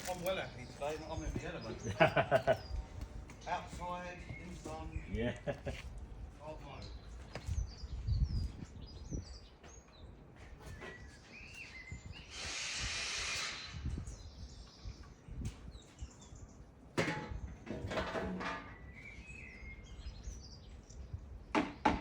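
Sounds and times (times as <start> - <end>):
small birds chirping: 0.0 - 17.6, 18.7 - 22.0
hiss: 12.2 - 14.0.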